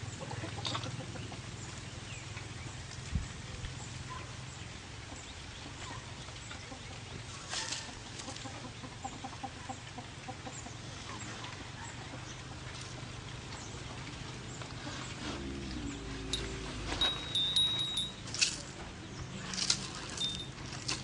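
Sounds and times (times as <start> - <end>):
steady low hum: 13.8 - 18.8.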